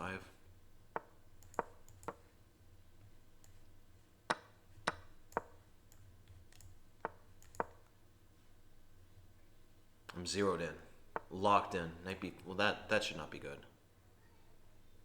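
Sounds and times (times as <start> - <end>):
chess move clicks: 0.9 - 2.3, 4.3 - 7.9, 11.2 - 11.4.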